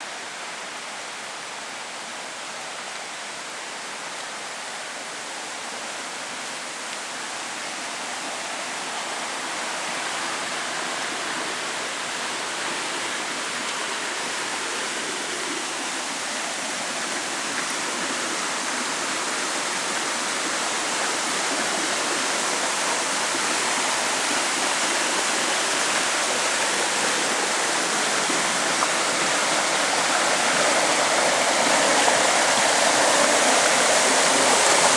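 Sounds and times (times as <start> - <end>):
heavy rain pouring: 7.1 - 34.9.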